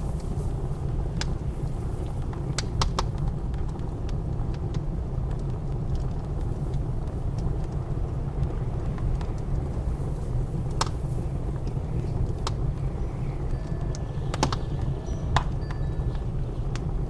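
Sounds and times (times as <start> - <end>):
blizzard wind rumble: 0.0 - 17.0
wood fire crackling and popping: 0.0 - 17.0.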